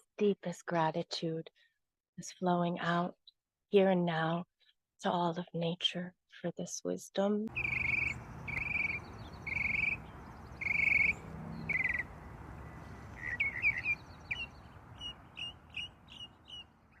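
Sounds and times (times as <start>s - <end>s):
bird trilling and chirping: 7.5s - 17.0s.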